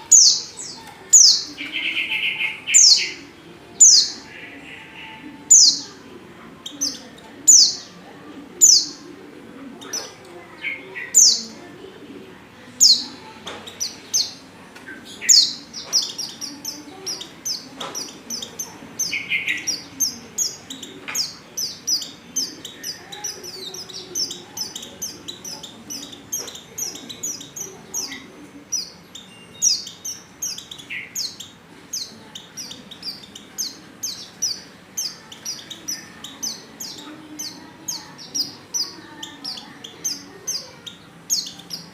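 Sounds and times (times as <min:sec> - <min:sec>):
bird chirping: 0:12.8 - 0:41.9.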